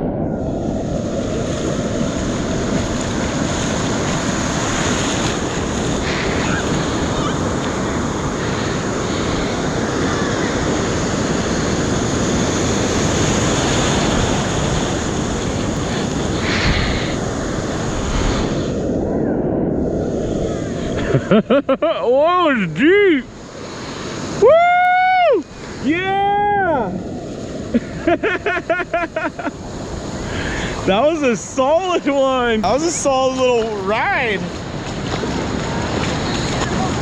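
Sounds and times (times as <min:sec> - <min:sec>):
wind buffeting microphone: 0:00.0 - 0:21.6, 0:29.3 - 0:37.0
surf breaking: 0:00.0 - 0:37.0.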